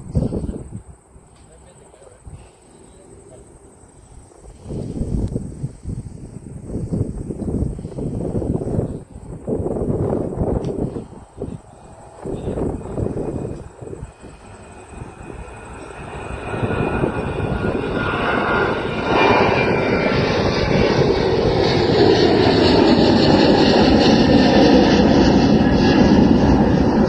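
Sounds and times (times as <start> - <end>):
jet engines at takeoff power: 0.0 - 27.0.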